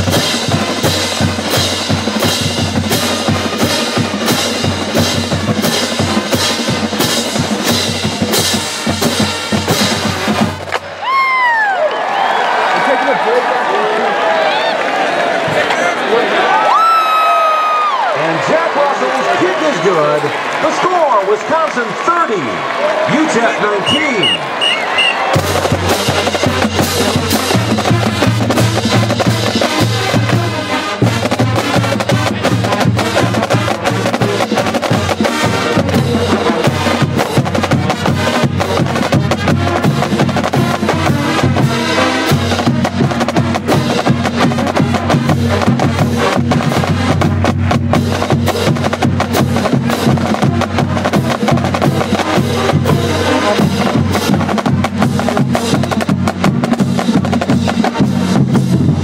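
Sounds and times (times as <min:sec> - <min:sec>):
low brass notes: 0:00.0 - 0:10.9, 0:22.6 - 0:59.0
snare and bass drums: 0:00.0 - 0:11.0, 0:23.1 - 0:59.0.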